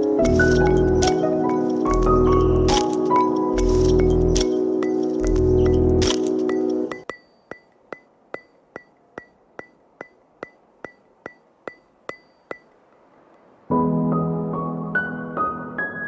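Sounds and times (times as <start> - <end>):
soft piano music: 0.0 - 7.1, 13.7 - 16.0.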